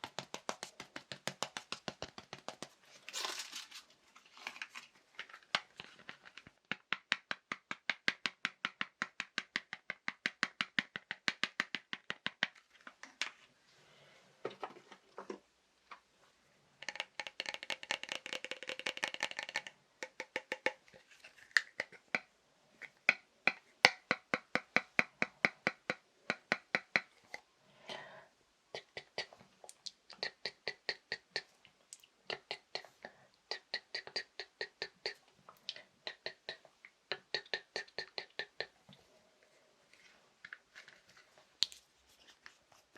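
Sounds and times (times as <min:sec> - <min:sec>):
fast tapping on objects: 0:00.0 - 0:02.9, 0:05.5 - 0:13.3, 0:16.8 - 0:20.9, 0:32.3 - 0:38.8.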